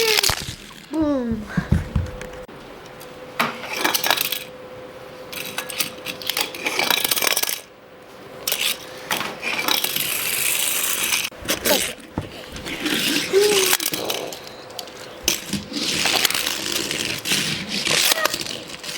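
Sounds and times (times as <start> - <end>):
small hard objects clattering: 0.0 - 1.0.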